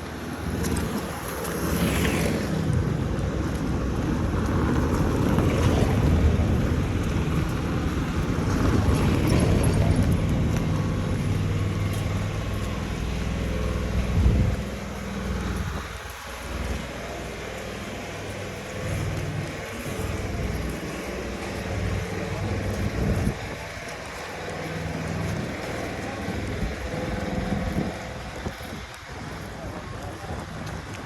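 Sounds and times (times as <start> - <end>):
street traffic: 0.0 - 31.0
car engine running: 3.9 - 30.2.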